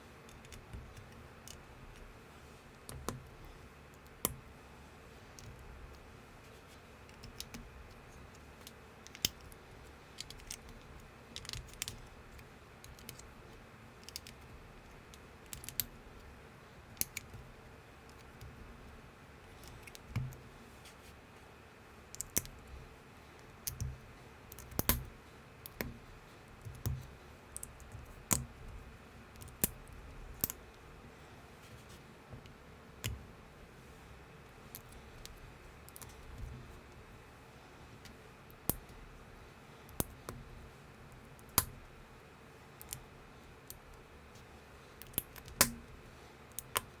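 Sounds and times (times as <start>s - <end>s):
plastic bricks snapping together: 24.6s - 25.1s.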